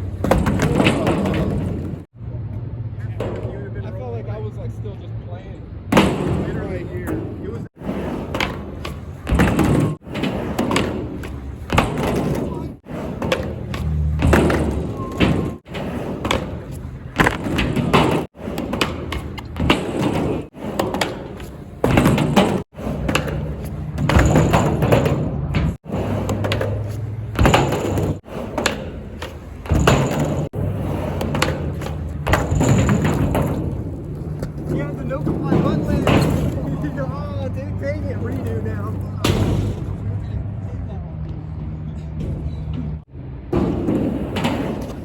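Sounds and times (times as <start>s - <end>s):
skateboard clacking and thudding: 0.0s - 2.1s, 5.9s - 37.0s, 43.5s - 45.0s
skateboard wheels rumbling on wood: 0.0s - 2.1s, 6.0s - 39.2s, 43.4s - 45.0s.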